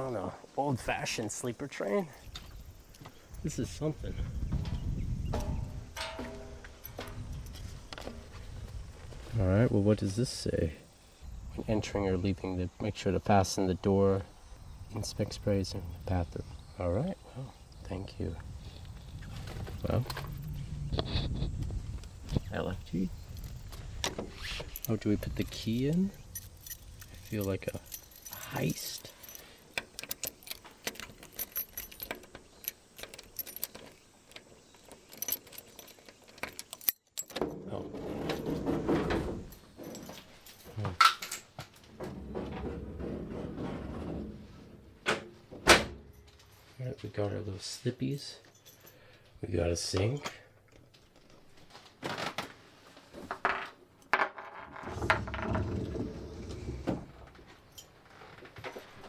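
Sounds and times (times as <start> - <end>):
keys jangling: 1.8 - 8.2, 19.5 - 20.6, 22.4 - 41.6, 45.9 - 46.8, 48.1 - 49.2, 57.6 - 58.0
key clicking in door lock: 23.3 - 37.5.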